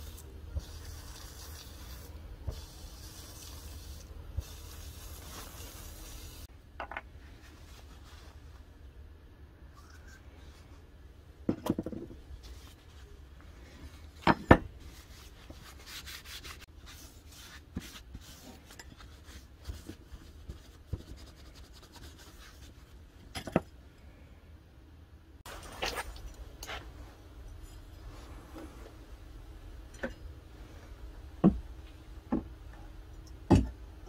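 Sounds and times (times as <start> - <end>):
tissue rubbing on steel: 4.4 - 6.5, 14.8 - 22.9.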